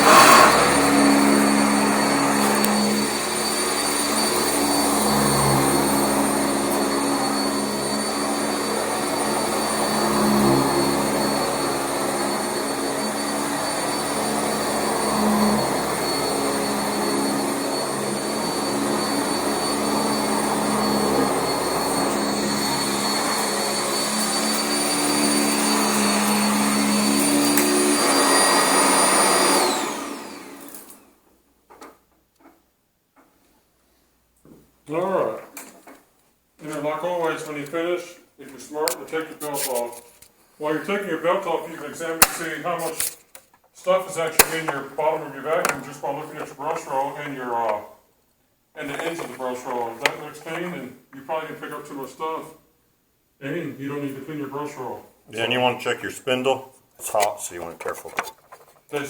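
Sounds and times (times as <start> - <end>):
vacuum motor spinning down: 0.0 - 31.0
upright vacuum running on carpet: 0.0 - 31.1.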